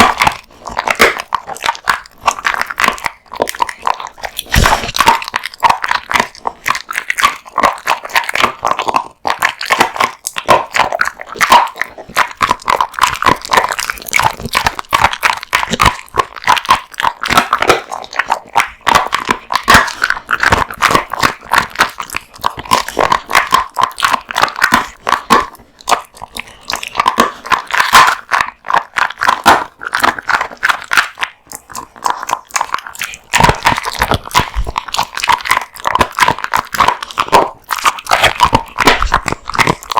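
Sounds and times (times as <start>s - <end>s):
dog chewing bones: 0.0s - 39.9s.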